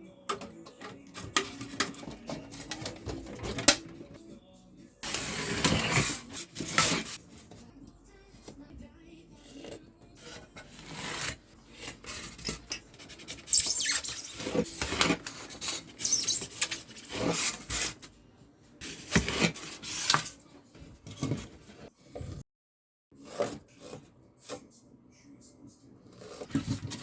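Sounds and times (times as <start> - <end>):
scraping polystyrene foam: 18.8 - 20.4.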